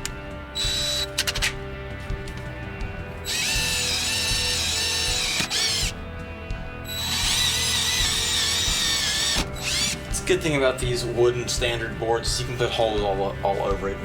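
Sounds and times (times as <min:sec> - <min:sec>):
power drill boring into wood: 0:00.6 - 0:01.5, 0:03.2 - 0:06.0, 0:06.8 - 0:10.0.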